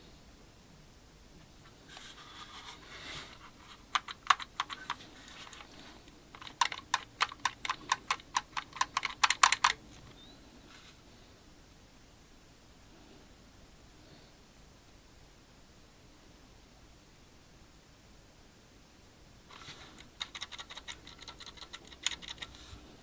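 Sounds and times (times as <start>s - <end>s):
rustle: 0.0s - 6.4s, 9.9s - 20.2s
keys clicking: 3.9s - 10.1s, 19.9s - 22.7s.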